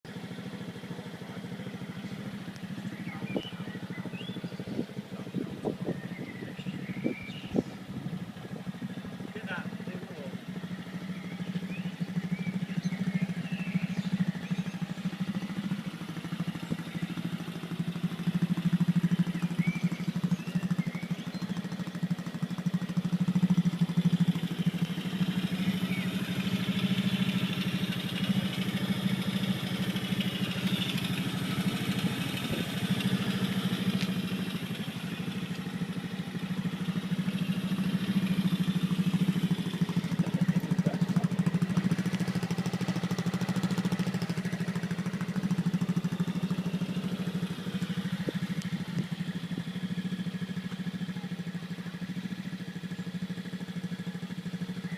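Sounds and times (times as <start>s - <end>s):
small engine running: 0.1s - 54.9s.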